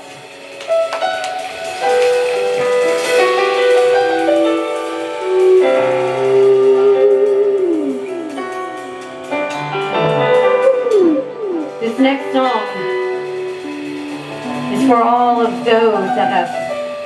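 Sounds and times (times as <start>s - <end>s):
slow keyboard music: 0.0s - 17.0s.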